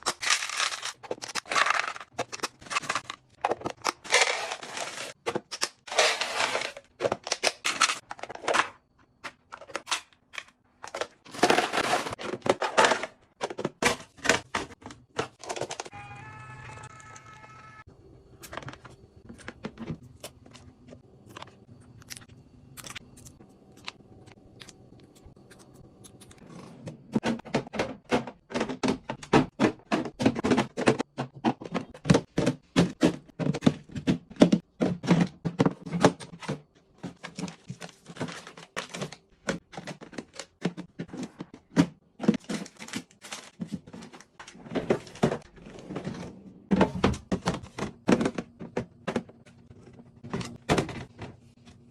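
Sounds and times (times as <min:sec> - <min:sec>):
plastic boxes clicking and knocking: 0:00.0 - 0:15.9, 0:26.9 - 0:51.9.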